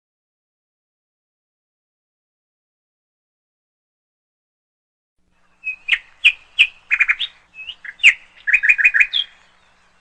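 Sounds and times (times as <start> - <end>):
bird chirps and whistles: 5.6 - 9.6.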